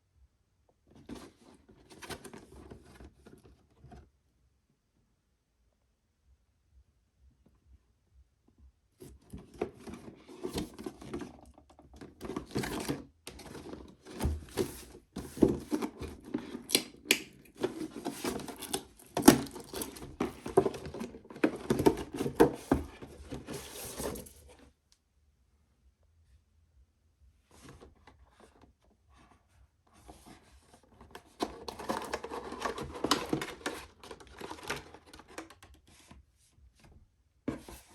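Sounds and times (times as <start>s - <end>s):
packaging rustling and tearing: 12.2s - 24.4s, 31.2s - 35.6s.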